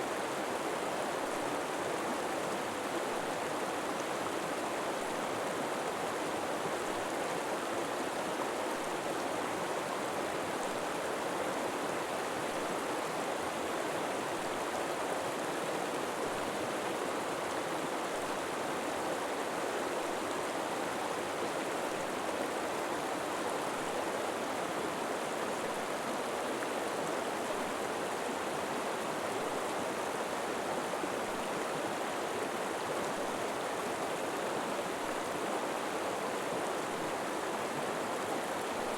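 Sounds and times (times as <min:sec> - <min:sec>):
river flowing over rocks: 0:00.1 - 0:38.9.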